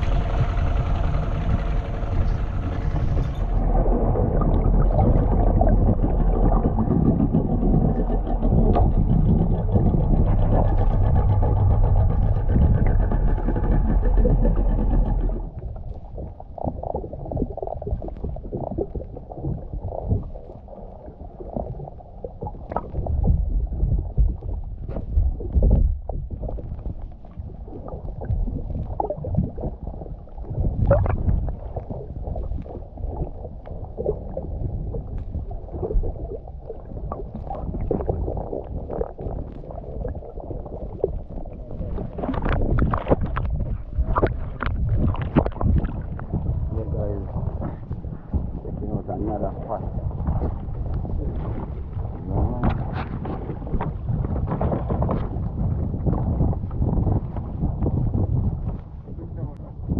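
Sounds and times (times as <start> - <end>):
boat motor running: 0.0 - 16.5
water sloshing: 35.1 - 48.6.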